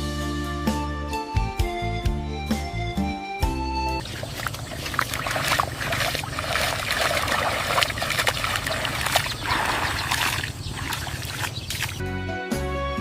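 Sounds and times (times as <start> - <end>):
water trickling and splashing: 4.0 - 12.0.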